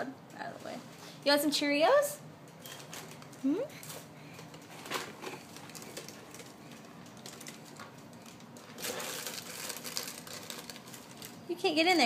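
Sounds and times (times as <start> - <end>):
taps and rustles of small objects: 2.4 - 12.0.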